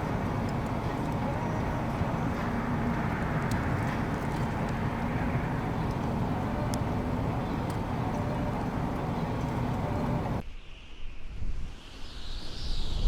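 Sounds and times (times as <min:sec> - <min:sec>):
faint engine hum: 0:00.0 - 0:10.4
road traffic rumble: 0:00.0 - 0:10.4.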